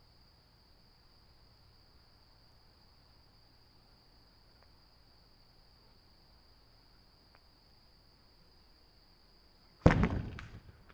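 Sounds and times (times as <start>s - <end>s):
crickets trilling: 0.0s - 10.9s
faint ticks: 4.5s - 4.8s, 7.2s - 7.5s.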